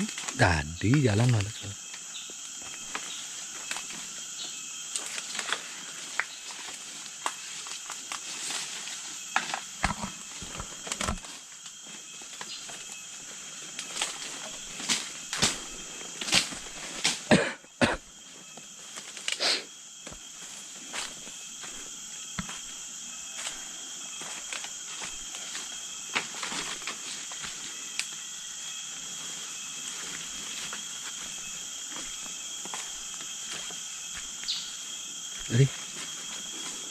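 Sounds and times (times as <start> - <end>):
high-pitched hiss: 0.0 - 36.9
footsteps on outdoor path: 20.9 - 22.8, 30.6 - 34.5.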